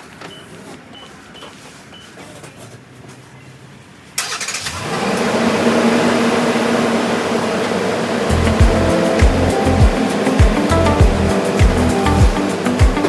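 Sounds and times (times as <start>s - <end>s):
car engine starting and idling: 4.2s - 12.4s.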